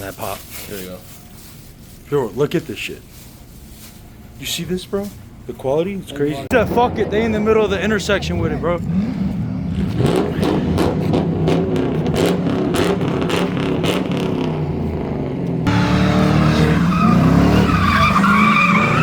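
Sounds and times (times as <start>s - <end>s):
car engine revving hard: 6.6s - 19.0s
tyres squealing: 15.7s - 19.0s.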